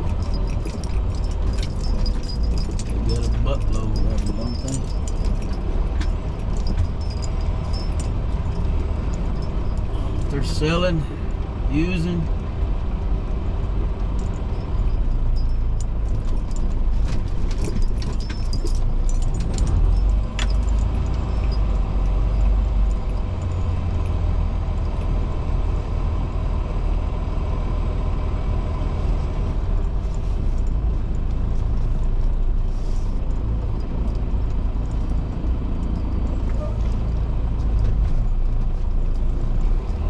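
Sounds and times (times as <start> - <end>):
truck engine rumbling: 0.0 - 40.0
rattling clicks: 15.4 - 22.2.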